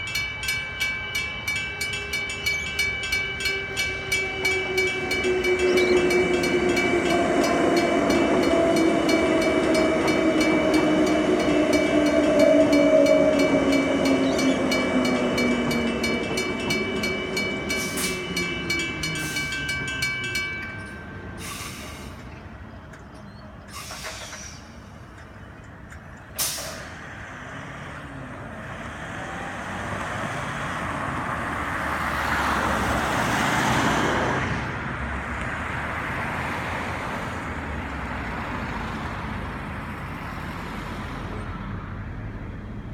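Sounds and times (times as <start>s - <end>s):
level crossing warning bells: 0.0s - 23.7s
road traffic: 0.0s - 42.9s
electric train motor whine: 1.5s - 21.2s.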